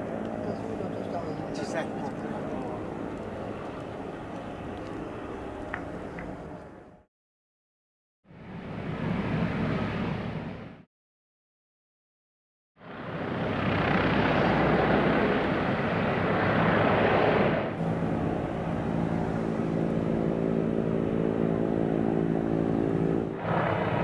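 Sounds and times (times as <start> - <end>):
turboprop engines running: 0.0 - 7.0, 12.9 - 24.0.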